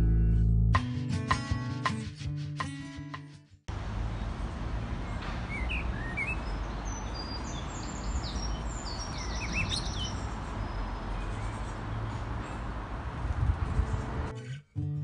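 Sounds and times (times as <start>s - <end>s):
songbirds chirping and singing: 3.9s - 14.3s.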